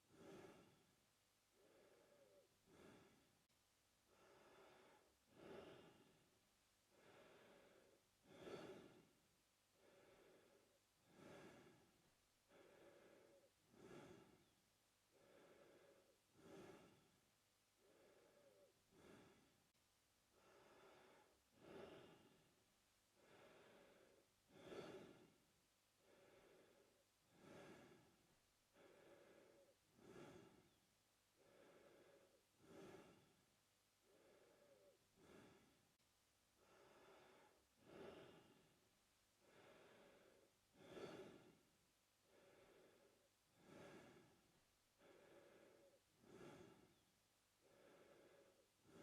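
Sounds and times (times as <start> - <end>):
man breathing through mouth: 12.5 - 14.5, 15.1 - 17.2, 17.8 - 19.5, 23.2 - 25.3, 26.0 - 30.8, 31.4 - 33.4, 34.0 - 35.8, 36.6 - 38.7, 39.4 - 41.6, 42.3 - 44.4, 45.0 - 47.0.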